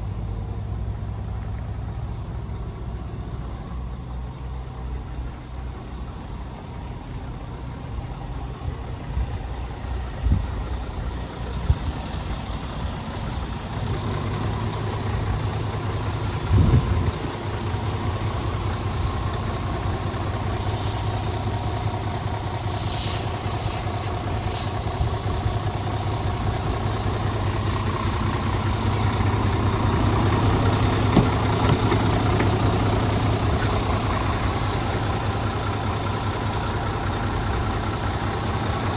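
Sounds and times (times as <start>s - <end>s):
truck diesel engine idling: 0.0s - 38.9s
short air hisses: 5.2s - 5.8s, 15.9s - 28.9s
loud thump: 31.1s - 32.6s.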